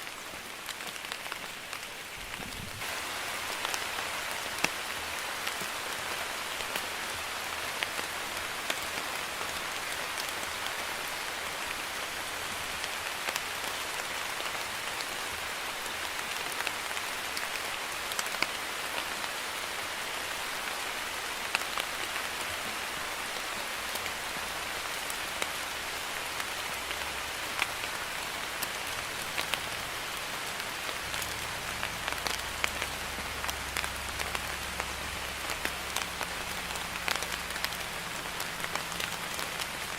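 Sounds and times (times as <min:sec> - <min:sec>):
light rain hissing: 0:00.0 - 0:39.9
raindrops ticking: 0:23.2 - 0:39.9.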